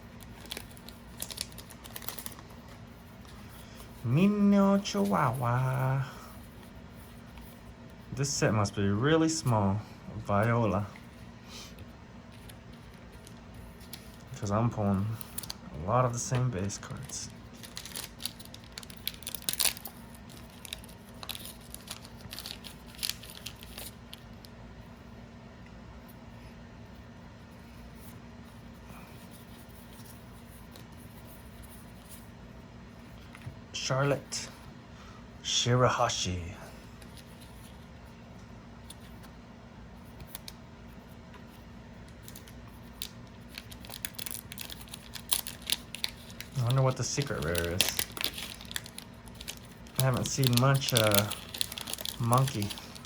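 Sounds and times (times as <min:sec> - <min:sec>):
cards and foil wrapper rustling: 0:00.0 - 0:07.6, 0:12.3 - 0:24.4, 0:40.0 - 0:40.6, 0:42.1 - 0:53.0.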